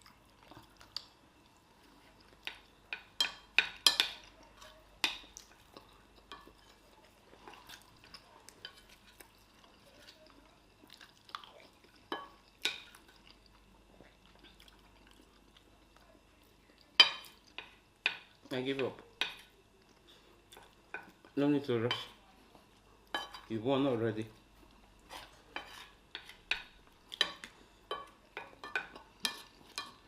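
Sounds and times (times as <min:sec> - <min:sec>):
people chewing: 0:00.0 - 0:18.5, 0:19.1 - 0:23.4, 0:24.4 - 0:30.0
cutlery clinking on plates: 0:02.4 - 0:04.3, 0:12.1 - 0:13.0, 0:17.0 - 0:18.3, 0:23.1 - 0:23.5, 0:25.1 - 0:30.0.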